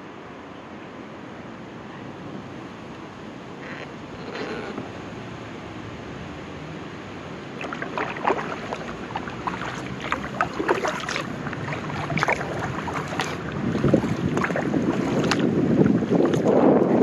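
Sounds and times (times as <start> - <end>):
rush of water: 0.9 - 17.0
paddle splashes and drips: 7.4 - 17.0
wind on microphone: 7.6 - 17.0.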